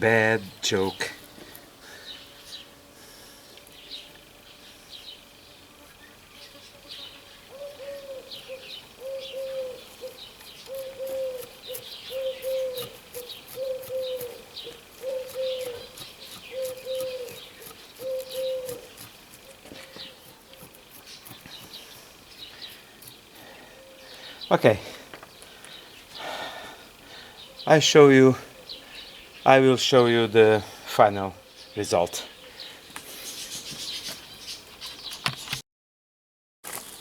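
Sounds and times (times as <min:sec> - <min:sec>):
small birds chirping: 0:00.0 - 0:35.6
bird cooing: 0:07.4 - 0:19.1, 0:23.4 - 0:24.4, 0:28.4 - 0:28.9, 0:31.3 - 0:31.7.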